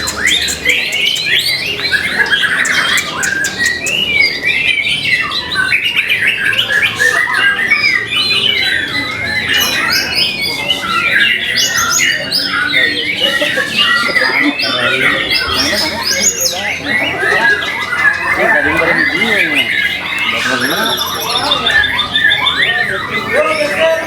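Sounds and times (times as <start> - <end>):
bird singing rapid whistled song: 0.0 - 12.9.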